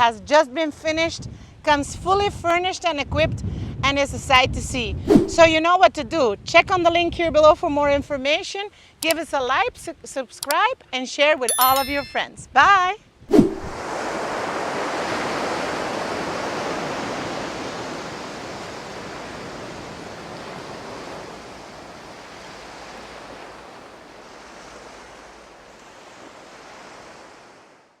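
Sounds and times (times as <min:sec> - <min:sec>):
wind blowing: 0:04.8 - 0:05.7, 0:13.3 - 0:27.8
ocean surf washing onto beach: 0:13.5 - 0:27.8.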